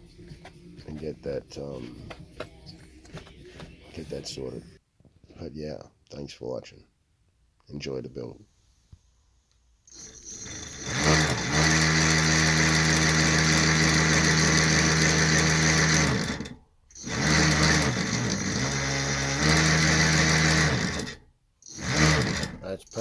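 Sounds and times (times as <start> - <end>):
electric motor whirring: 9.9 - 23.0.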